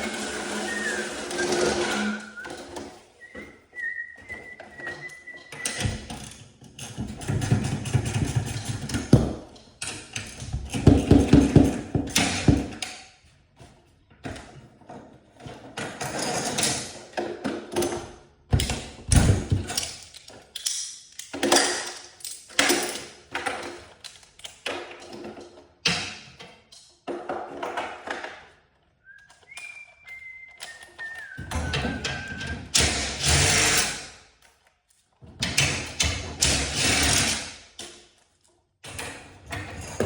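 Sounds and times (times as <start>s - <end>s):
metal hardware and tools clanking: 15.4s - 28.3s, 38.8s - 40.0s.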